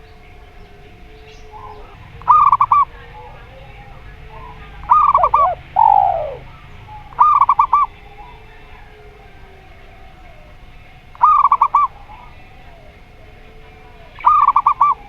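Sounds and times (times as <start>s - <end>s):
long falling coo: 0.0s - 15.0s
dove staccato coos: 1.4s - 15.0s.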